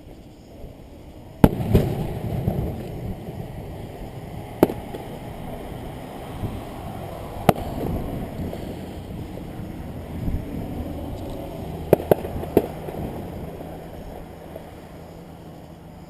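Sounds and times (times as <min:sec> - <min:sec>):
low rumbling echo: 0:00.7 - 0:15.4
fireworks bursting with bangs: 0:01.3 - 0:05.8, 0:06.4 - 0:14.3.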